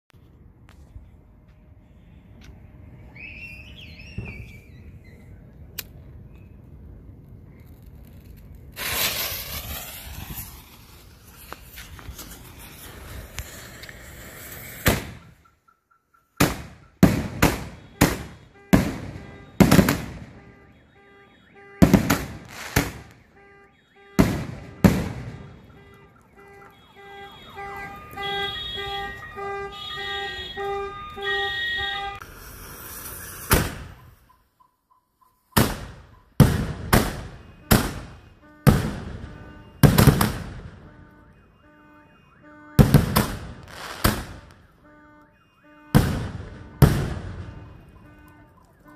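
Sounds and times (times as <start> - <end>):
hissing firework launch: 7.6 - 15.3, 32.2 - 34.2
fireworks shells bursting: 8.7 - 15.4
car alarm pulsed tones: 15.1 - 32.2, 37.2 - 40.0, 40.7 - 43.6, 44.2 - 48.9.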